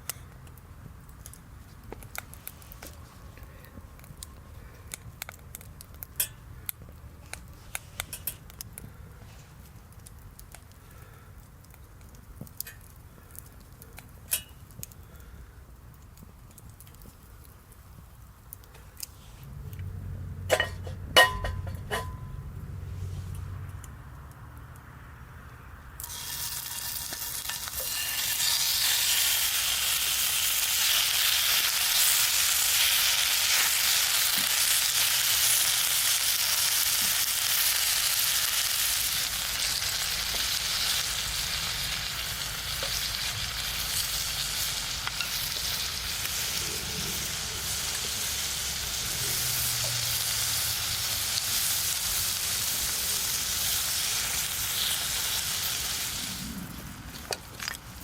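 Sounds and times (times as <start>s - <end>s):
beef sizzling in a hot pan: 26.0s - 56.5s.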